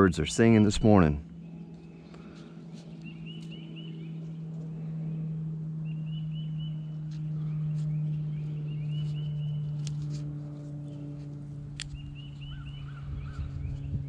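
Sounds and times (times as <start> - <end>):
steady low hum: 0.0 - 14.0
songbird chirping: 2.8 - 4.3, 5.8 - 9.8, 11.8 - 14.0
sharp clicks: 11.7 - 12.1.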